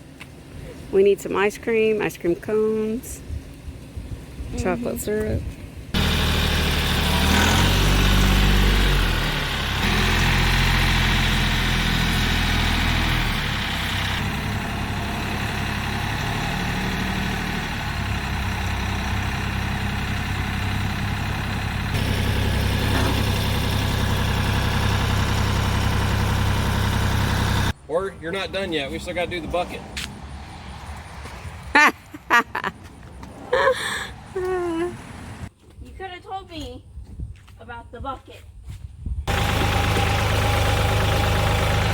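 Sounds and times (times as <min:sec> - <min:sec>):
tractor diesel engine running: 0:06.0 - 0:27.8, 0:39.3 - 0:41.9.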